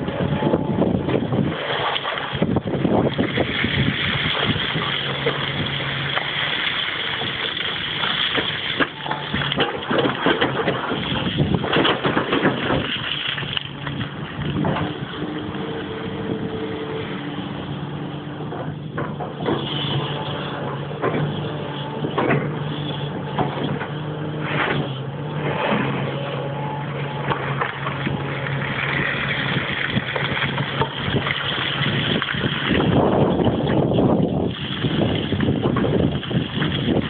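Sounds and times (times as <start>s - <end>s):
excavator diesel engine running: 0.0s - 37.0s
sharp knocks and clatter: 7.2s - 15.0s, 18.5s - 26.0s.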